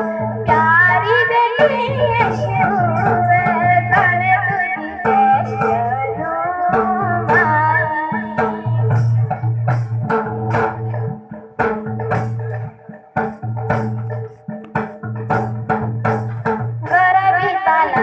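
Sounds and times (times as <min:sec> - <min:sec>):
hand drum and jingle percussion: 0:00.0 - 0:18.0
girl singing a folk song: 0:00.4 - 0:09.0, 0:16.8 - 0:18.0.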